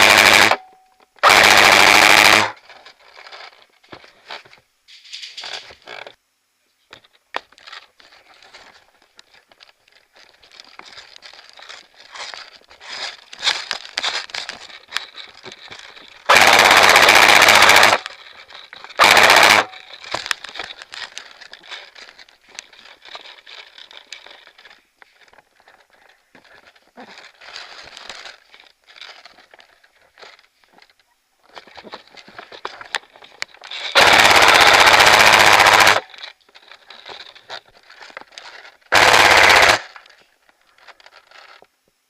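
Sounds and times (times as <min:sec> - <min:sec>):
airsoft rifle full-auto bursts: 0:00.0 - 0:00.6, 0:01.2 - 0:02.6, 0:16.2 - 0:18.2, 0:19.0 - 0:19.9, 0:33.9 - 0:36.1, 0:38.9 - 0:40.0
rustling and clicking of movement: 0:02.6 - 0:06.2, 0:06.9 - 0:16.6, 0:17.7 - 0:34.0, 0:35.1 - 0:42.0.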